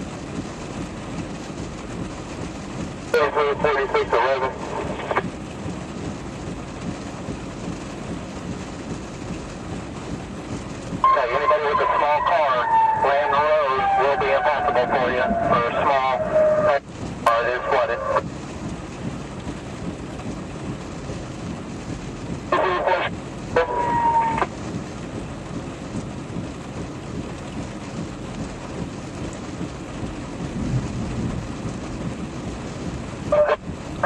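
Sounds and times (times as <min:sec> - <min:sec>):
heavy rain hiss: 0:00.0 - 0:34.0
voice-like bursts: 0:03.2 - 0:05.2, 0:11.0 - 0:18.2, 0:22.5 - 0:24.5, 0:33.3 - 0:33.6.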